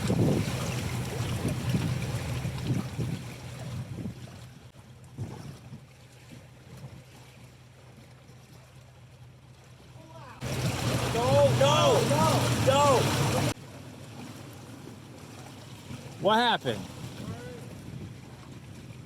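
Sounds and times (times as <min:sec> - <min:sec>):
wind buffeting microphone: 0:00.0 - 0:05.8, 0:10.4 - 0:13.6, 0:16.8 - 0:19.0
engine hum: 0:00.0 - 0:19.0
water: 0:00.0 - 0:19.0.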